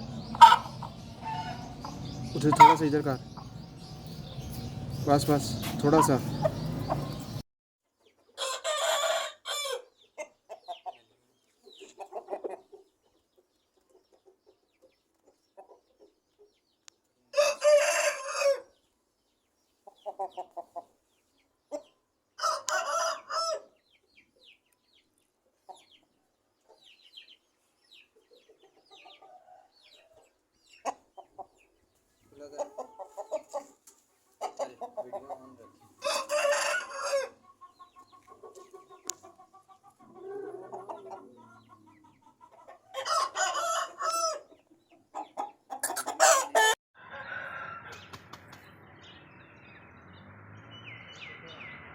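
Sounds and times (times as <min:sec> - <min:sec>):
rooster clucking: 0:00.0 - 0:04.7, 0:05.4 - 0:07.4, 0:34.4 - 0:44.5, 0:45.1 - 0:48.2
roosters crowing: 0:00.0 - 0:07.4, 0:08.4 - 0:09.9, 0:17.4 - 0:18.7, 0:22.4 - 0:23.7, 0:35.8 - 0:37.5, 0:42.9 - 0:44.5, 0:45.8 - 0:48.3.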